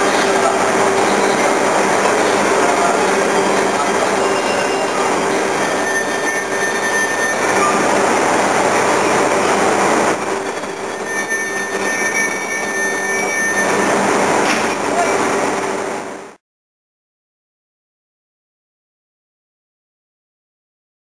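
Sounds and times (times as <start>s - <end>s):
high squealing tones: 0.0s - 15.9s
train wheels rumbling on rails: 0.0s - 16.3s.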